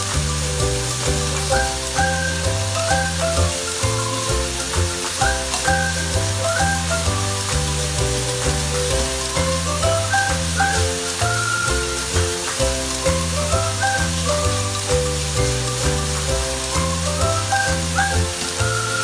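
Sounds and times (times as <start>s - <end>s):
background music: 0.0s - 19.0s
meat sizzling in a wok: 0.0s - 19.0s.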